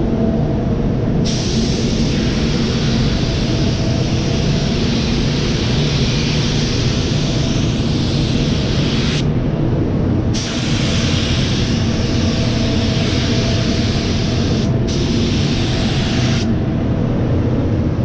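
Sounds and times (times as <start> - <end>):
low hum: 0.0 - 10.4
spray gun hissing: 1.2 - 9.3, 10.4 - 16.5.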